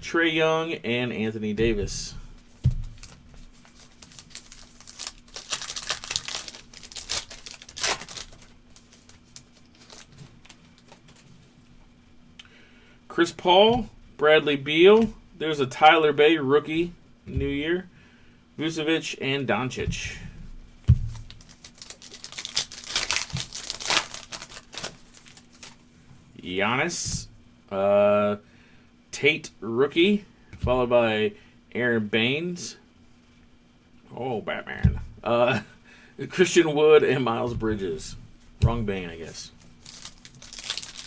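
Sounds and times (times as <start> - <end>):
thump: 2.6 - 3.0
foil pack crinkling and tearing: 2.9 - 11.3, 21.1 - 25.8, 39.2 - 41.0.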